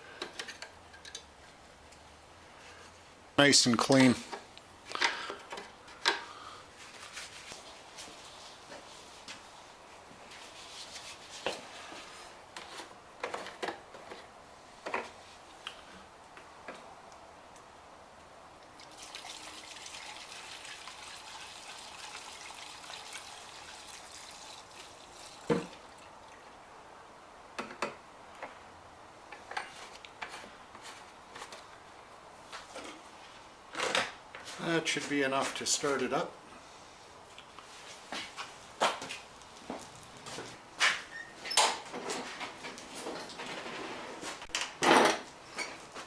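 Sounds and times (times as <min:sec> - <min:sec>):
gasoline trickling into tank: 0:18.8 - 0:26.6.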